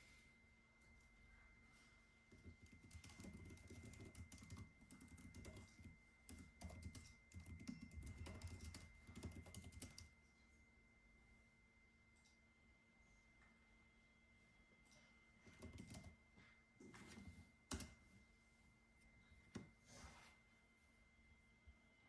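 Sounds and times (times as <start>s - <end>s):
faint high whine: 0.0s - 22.0s
typing on computer keyboard: 2.3s - 10.1s, 15.4s - 16.2s, 17.0s - 18.0s.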